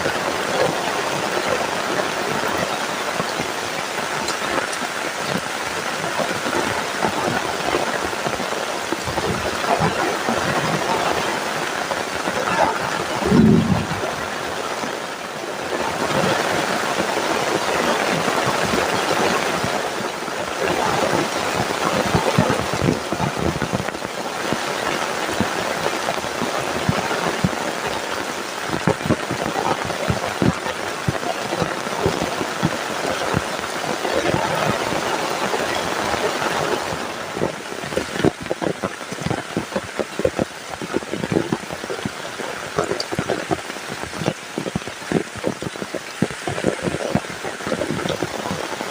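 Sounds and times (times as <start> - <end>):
heavy rain: 0.0 - 48.9
raindrops ticking on surface: 0.0 - 48.9.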